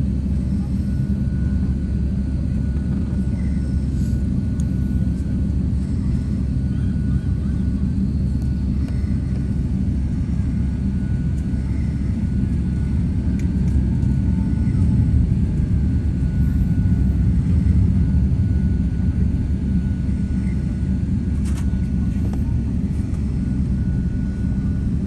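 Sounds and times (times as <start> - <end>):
jet engines rumbling: 0.0 - 25.0.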